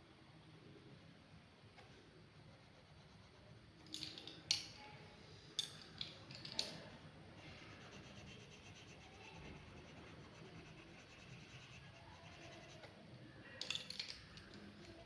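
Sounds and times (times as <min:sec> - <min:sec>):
drawing tool scratching paper: 0:07.4 - 0:13.0.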